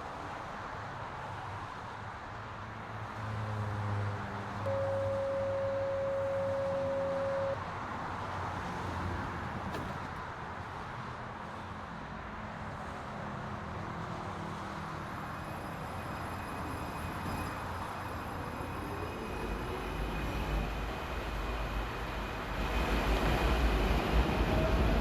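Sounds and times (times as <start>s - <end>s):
faint high tones: 4.7s - 7.6s
loud steady tone: 4.7s - 7.6s
rising whine: 4.7s - 7.6s
train rolling rumble: 8.2s - 10.3s, 15.2s - 25.0s.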